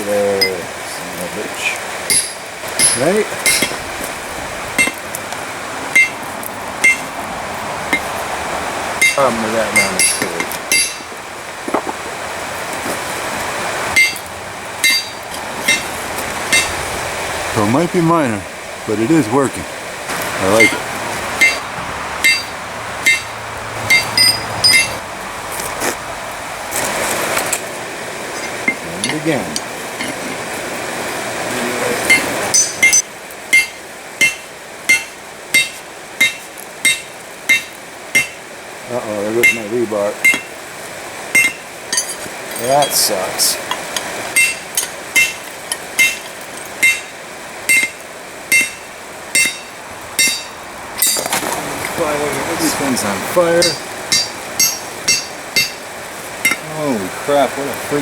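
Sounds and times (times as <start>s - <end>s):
steady rushing background noise: 0.0s - 58.0s
hammer striking steel on anvil: 2.1s - 3.9s, 4.8s - 5.0s, 5.9s - 6.2s, 6.8s - 7.1s, 9.0s - 11.1s, 14.0s - 15.9s, 16.5s - 16.8s, 21.4s - 21.6s, 22.2s - 23.3s, 23.9s - 25.0s, 32.1s - 38.4s, 39.4s - 40.5s, 41.3s - 42.2s, 43.7s - 51.3s, 53.6s - 56.6s.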